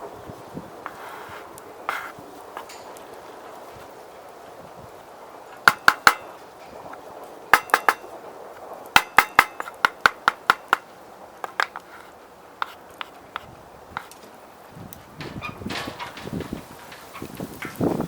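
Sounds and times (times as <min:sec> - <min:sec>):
utensil clinking on cookware: 0:07.6 - 0:08.1.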